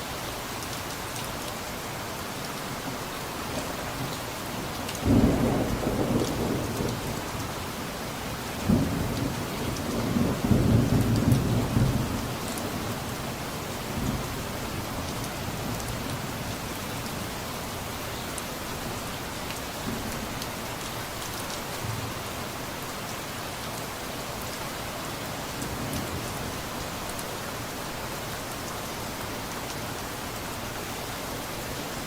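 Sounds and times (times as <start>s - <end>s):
steady rain falling: 0.0s - 32.0s
low rumble of thunder: 5.0s - 7.5s, 8.5s - 13.0s.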